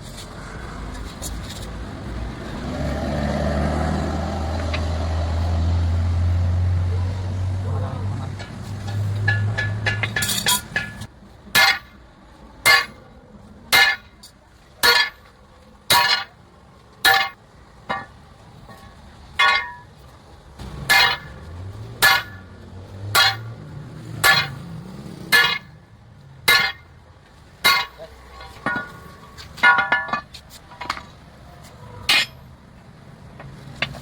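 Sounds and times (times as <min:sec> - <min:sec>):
hammer striking steel: 0:08.3 - 0:12.0, 0:12.6 - 0:13.0, 0:13.7 - 0:14.2, 0:14.8 - 0:15.3, 0:15.9 - 0:16.4, 0:17.0 - 0:18.2, 0:19.4 - 0:19.9, 0:20.8 - 0:21.4, 0:22.0 - 0:22.5, 0:23.1 - 0:23.6, 0:24.2 - 0:24.7, 0:25.3 - 0:25.8, 0:26.5 - 0:26.9, 0:27.6 - 0:31.1, 0:32.1 - 0:32.4.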